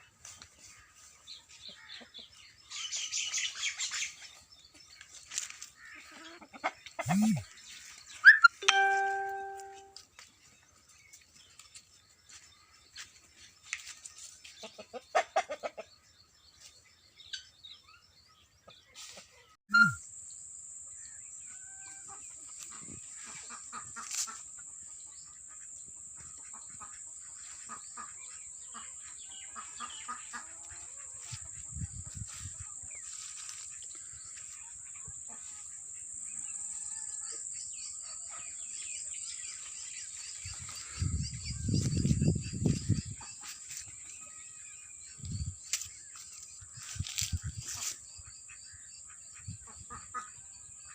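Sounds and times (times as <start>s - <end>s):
small birds chirping: 0.0s - 20.0s, 22.3s - 50.9s
chickens clucking: 6.0s - 7.4s, 14.5s - 16.0s, 26.2s - 33.8s.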